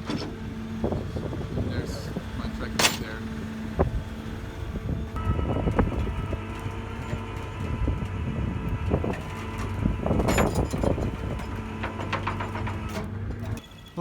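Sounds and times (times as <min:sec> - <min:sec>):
truck engine running: 0:00.0 - 0:14.0
metallic clanks and knocks: 0:02.6 - 0:03.2, 0:09.1 - 0:13.6
metal clattering: 0:02.7 - 0:03.2.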